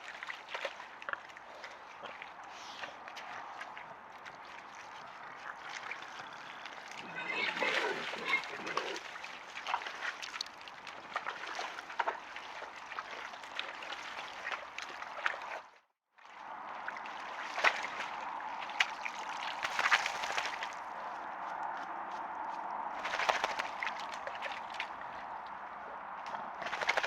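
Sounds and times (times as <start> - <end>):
small wet clicks: 0.0 - 7.2, 8.2 - 15.6
mud and water sloshing: 0.0 - 21.8, 22.4 - 27.0.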